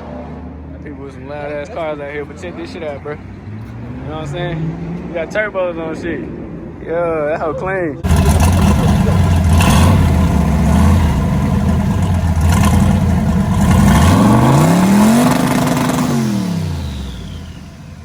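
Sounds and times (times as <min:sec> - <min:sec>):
turbocharged car engine revving: 0:08.0 - 0:18.0.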